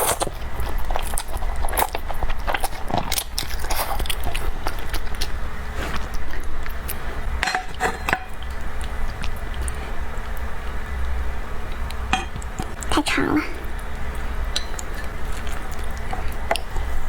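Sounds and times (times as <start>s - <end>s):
chewing and biting: 0.0s - 7.1s, 13.7s - 17.0s.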